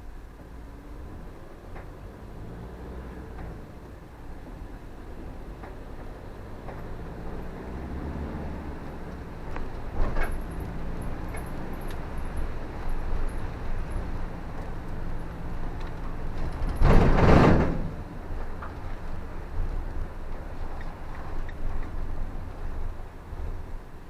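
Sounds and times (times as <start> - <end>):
car engine and road hum: 0.0 - 24.0.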